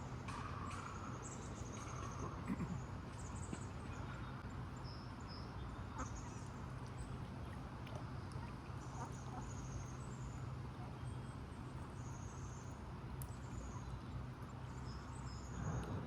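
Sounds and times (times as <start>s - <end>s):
low hum: 14.8s - 16.0s.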